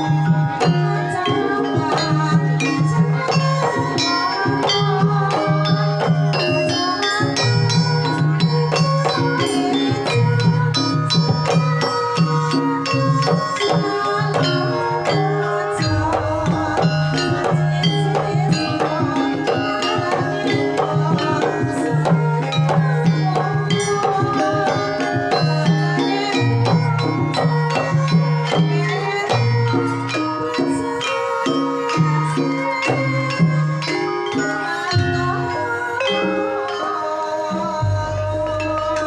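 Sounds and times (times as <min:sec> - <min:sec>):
hand drum strokes: 0:00.0 - 0:31.0
struck metal tones ringing: 0:00.0 - 0:39.0.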